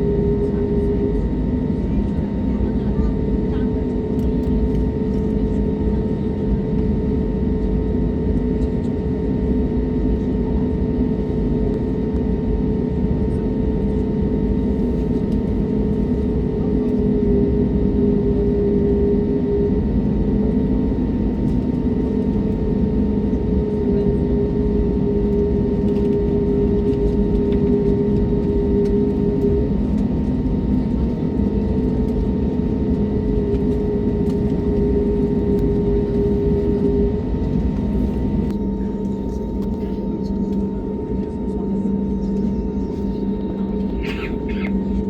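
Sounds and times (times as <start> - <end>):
airliner cabin engine drone: 0.0 - 45.0.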